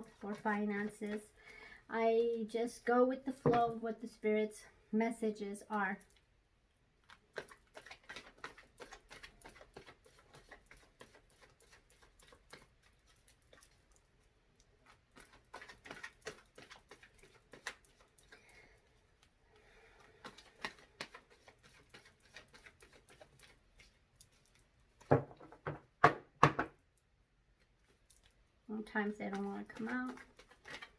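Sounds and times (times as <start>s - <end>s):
cards being shuffled: 7.2s - 13.2s, 15.2s - 18.4s, 20.0s - 25.6s, 29.3s - 30.9s.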